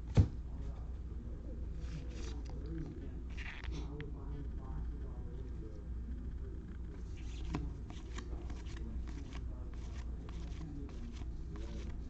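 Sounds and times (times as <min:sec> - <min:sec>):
cards flipped by hand: 0:07.1 - 0:12.0.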